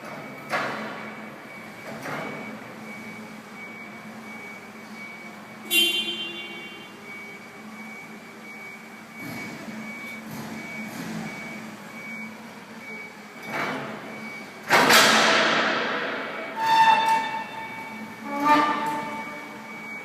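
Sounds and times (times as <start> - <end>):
reversing alarm beeping: 0.0 - 20.0
short squeals: 16.4 - 19.5.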